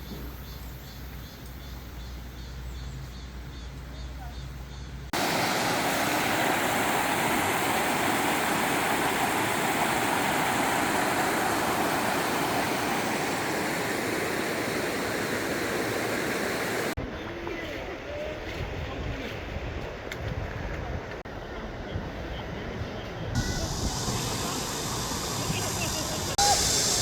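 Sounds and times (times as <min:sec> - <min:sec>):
stream water flowing over rocks: 0:05.2 - 0:17.0.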